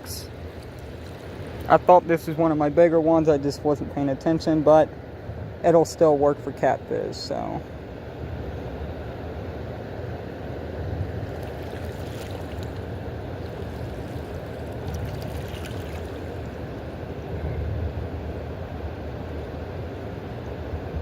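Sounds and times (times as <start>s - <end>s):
fast river water rushing: 0.0s - 3.2s, 8.8s - 17.4s.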